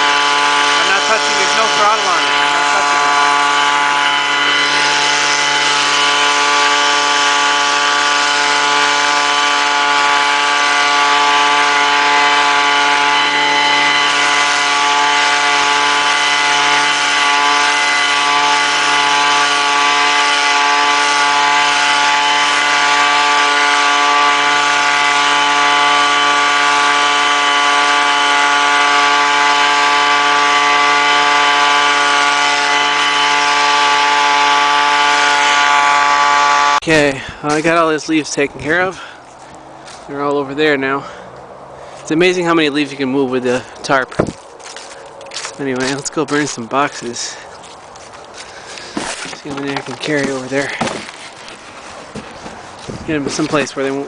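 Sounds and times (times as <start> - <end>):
leaf blower engine running: 0.0 - 6.1.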